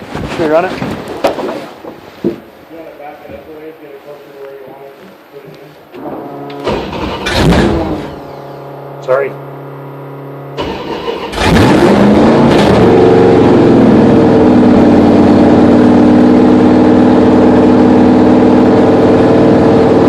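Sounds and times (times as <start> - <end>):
car engine cranking and revving: 6.0 - 20.0.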